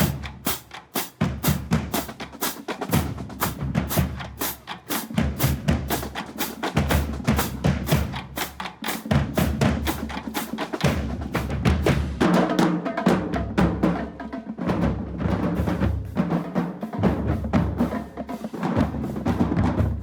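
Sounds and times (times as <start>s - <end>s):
snare drum strikes: 0.0s - 14.0s.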